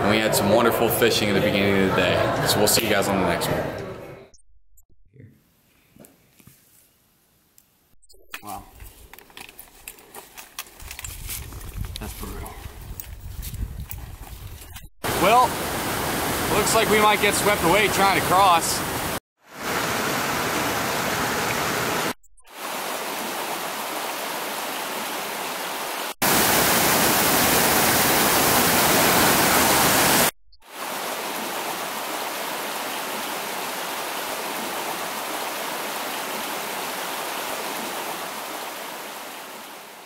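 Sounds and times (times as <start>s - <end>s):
stream and waterfall rushing: 15.1s - 40.0s.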